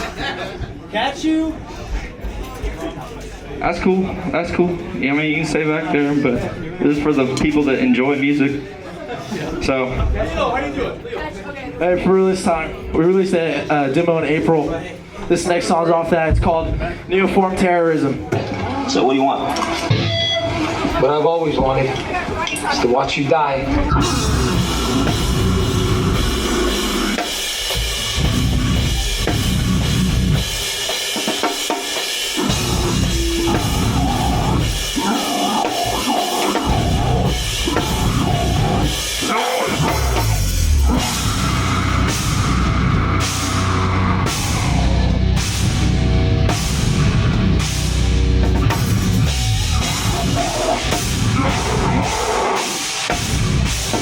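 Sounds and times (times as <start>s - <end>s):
heavy metal band playing live: 19.5s - 21.2s, 23.8s - 54.0s
drum kit with cymbals: 23.8s - 54.0s.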